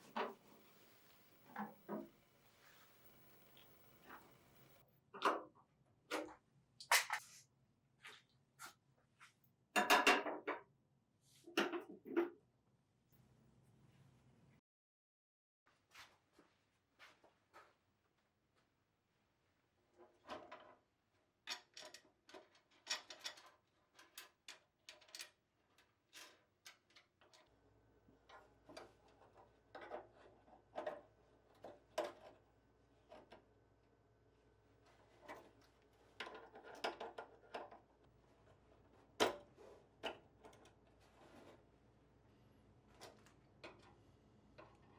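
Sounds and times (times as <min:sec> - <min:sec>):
faint steady hum: 0:00.0 - 0:04.9.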